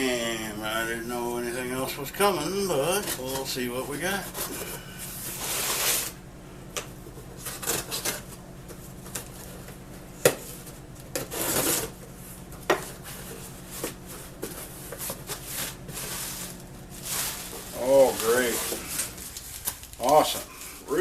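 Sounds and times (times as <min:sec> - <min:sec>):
cardboard package rubbing and scraping: 0:02.5 - 0:06.2, 0:07.2 - 0:09.6, 0:11.2 - 0:21.0
cardboard rustling: 0:10.5 - 0:21.0.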